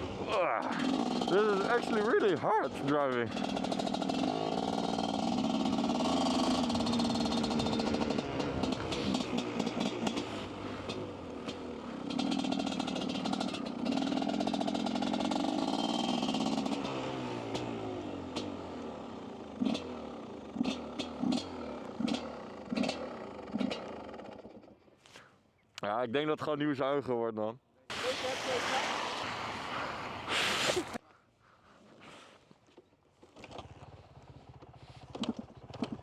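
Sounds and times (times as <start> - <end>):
dirt bike engine revving: 0.0 - 24.3, 27.9 - 31.0.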